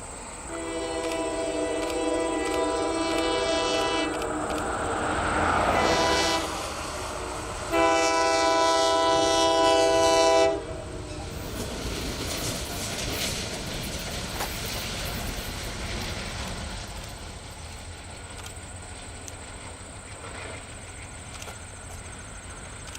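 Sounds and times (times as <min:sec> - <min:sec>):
passing train rumble: 0:00.0 - 0:22.9
locomotive horn blasts: 0:00.5 - 0:11.3.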